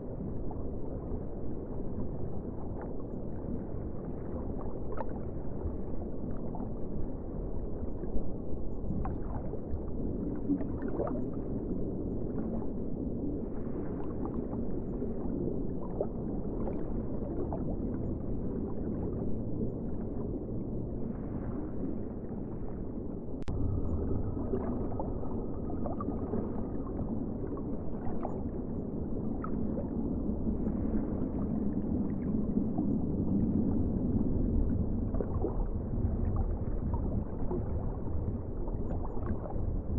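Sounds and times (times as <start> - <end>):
muffled wash of water: 0.0 - 39.9.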